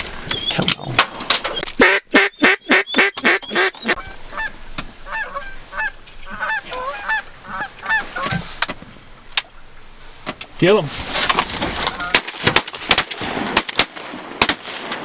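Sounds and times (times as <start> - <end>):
duck quacking: 1.8 - 4.5, 5.1 - 8.4.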